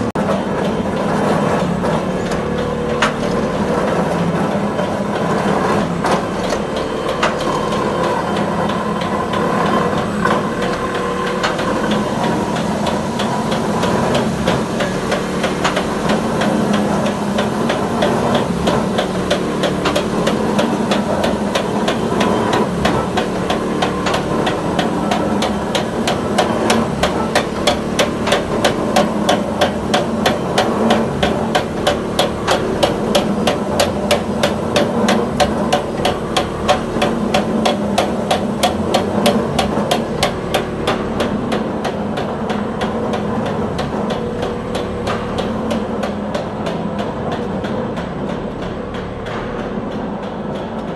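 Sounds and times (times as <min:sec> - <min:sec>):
machine motor hum: 0:00.0 - 0:50.9
rapid knocking strokes: 0:00.0 - 0:50.9.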